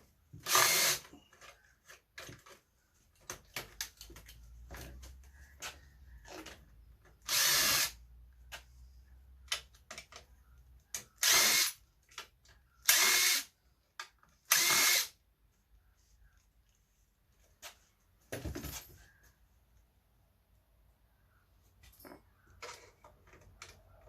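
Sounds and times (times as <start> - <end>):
power drill-driver bursts: 0.4 - 1.2, 7.2 - 8.0, 11.2 - 11.8, 12.8 - 13.5, 14.5 - 15.2.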